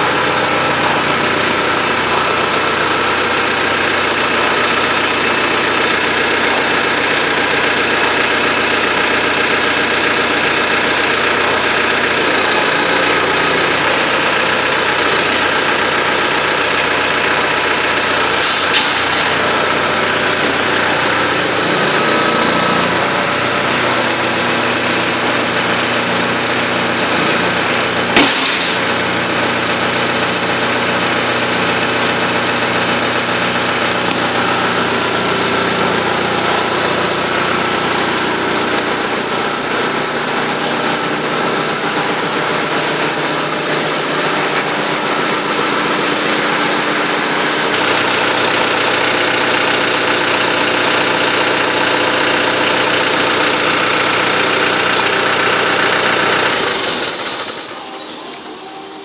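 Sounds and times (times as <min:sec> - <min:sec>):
tractor engine running: 0:00.0 - 0:59.0
sharp clank: 0:18.4 - 0:19.4, 0:28.1 - 0:29.0.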